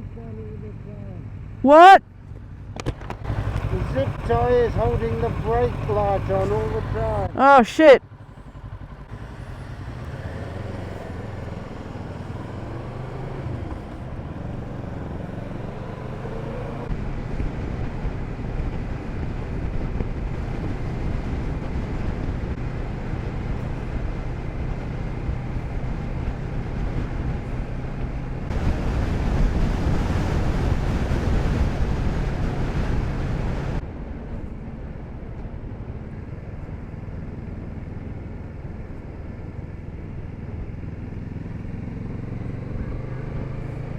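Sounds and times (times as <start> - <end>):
motorcycle engine running: 0.0 - 43.9
wind rushing over microphone: 8.2 - 41.6.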